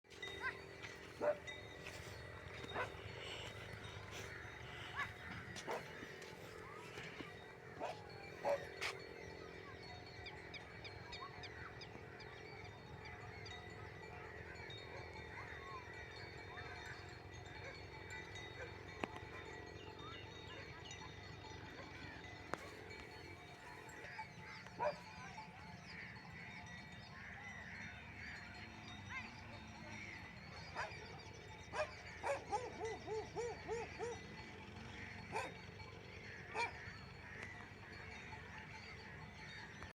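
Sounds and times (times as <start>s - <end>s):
dog barking: 1.2s - 1.5s, 2.7s - 3.0s, 4.9s - 6.0s, 7.8s - 8.8s, 24.8s - 25.1s, 30.7s - 31.0s, 31.7s - 34.3s, 35.3s - 35.6s, 36.5s - 36.8s
dog yipping: 4.9s - 5.8s, 24.8s - 25.0s, 31.7s - 34.3s, 35.3s - 35.6s, 36.6s - 36.8s.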